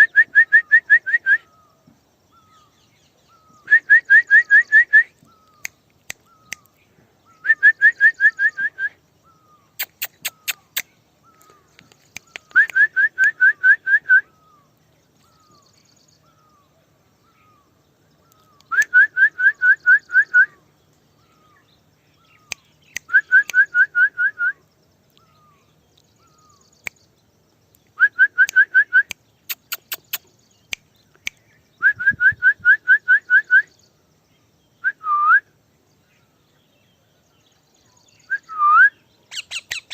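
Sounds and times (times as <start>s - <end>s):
rapid whistled chirps: 0.0s - 39.9s
faint single chirps: 4.6s - 13.6s.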